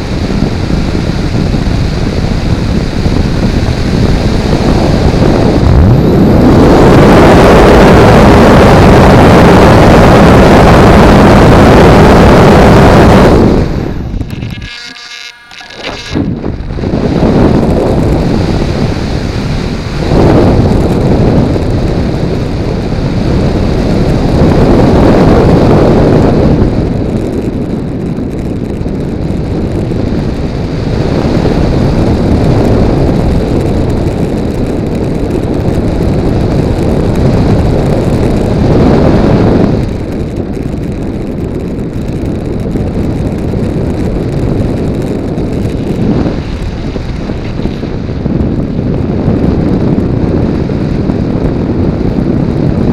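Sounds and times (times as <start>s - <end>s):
wind rushing over microphone: 0.0s - 52.9s.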